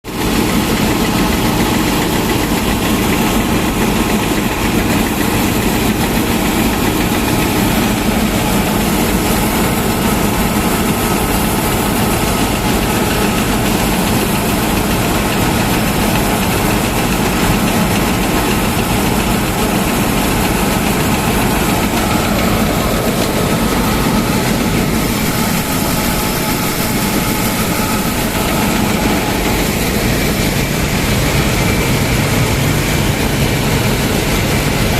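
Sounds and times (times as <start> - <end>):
combine harvester droning: 0.1 - 34.9.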